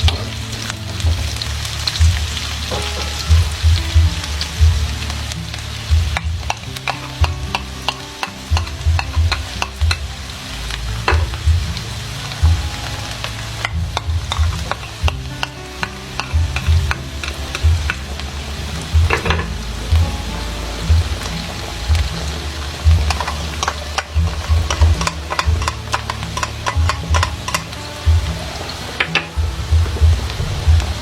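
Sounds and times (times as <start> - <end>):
food sizzling in a pan: 0.0 - 31.0
utensil knocking against pan: 6.2 - 10.1, 13.6 - 18.2, 19.0 - 19.5, 22.8 - 27.8.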